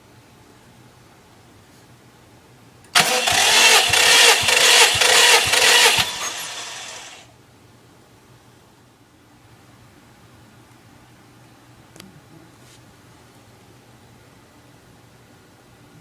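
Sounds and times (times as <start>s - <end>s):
car engine starting and running: 3.0s - 7.2s.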